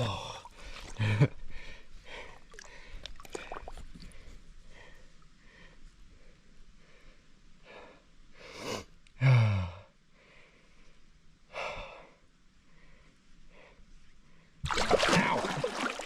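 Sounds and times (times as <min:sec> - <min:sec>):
person breathing heavily: 0:00.0 - 0:05.8
loud water splashing: 0:14.7 - 0:16.0.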